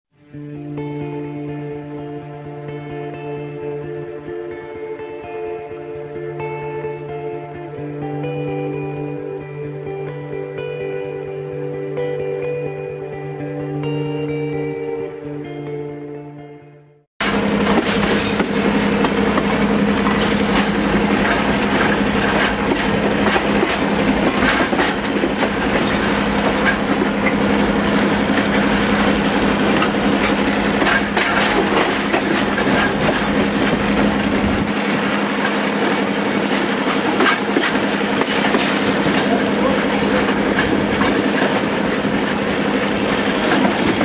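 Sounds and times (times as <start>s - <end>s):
train cars rumbling: 17.2s - 44.0s
wheels clicking over rail joints: 17.2s - 44.0s.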